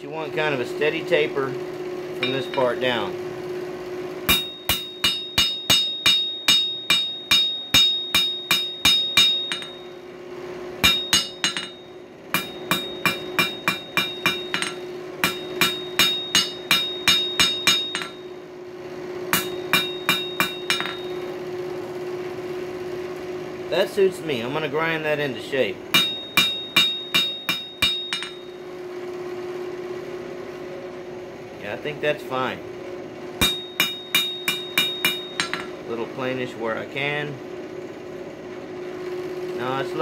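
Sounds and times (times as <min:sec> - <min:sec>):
steady low hum: 0:00.0 - 0:40.0
hammer striking steel on anvil: 0:02.2 - 0:03.0, 0:04.3 - 0:10.0, 0:10.8 - 0:18.4, 0:19.3 - 0:21.4, 0:25.9 - 0:28.6, 0:33.4 - 0:35.8.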